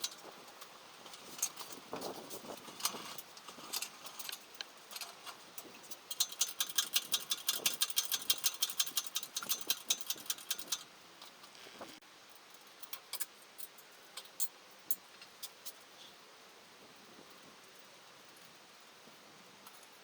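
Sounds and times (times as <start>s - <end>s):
hand tools clinking on metal: 1.1s - 10.9s
ratchet wrench clicking: 5.9s - 10.9s.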